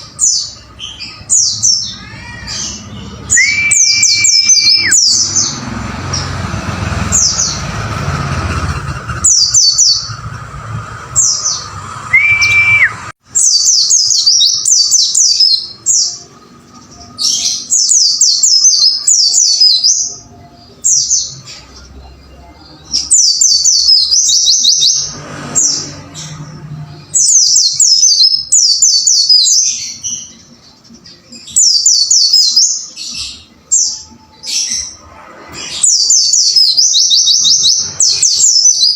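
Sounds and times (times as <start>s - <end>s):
bird twittering song: 0.0s - 38.9s
steady whistle-like tone: 12.1s - 13.2s.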